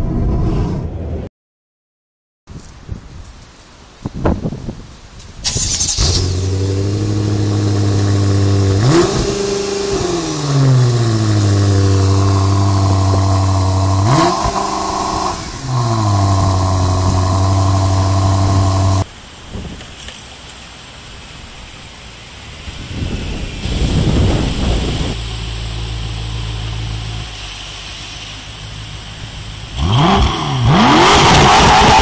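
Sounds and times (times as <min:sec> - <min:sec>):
car engine starting and revving: 0:05.4 - 0:19.1, 0:22.5 - 0:32.0.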